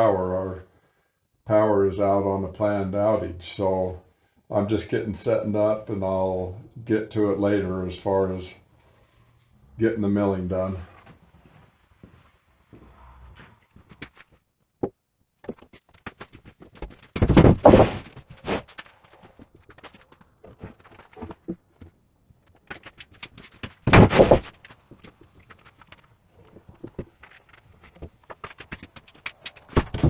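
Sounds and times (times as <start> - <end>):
wooden beams knocking: 17.2 - 18.0, 23.9 - 24.5
heavy wooden thunks: 17.2 - 18.1, 23.9 - 24.5, 29.8 - 30.0.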